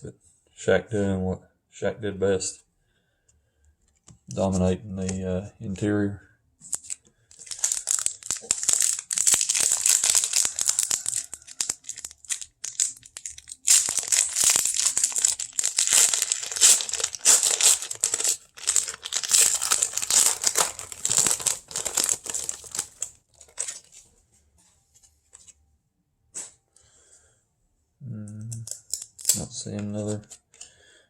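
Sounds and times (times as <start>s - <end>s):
card pack wrapper crinkling: 6.7s - 24.0s.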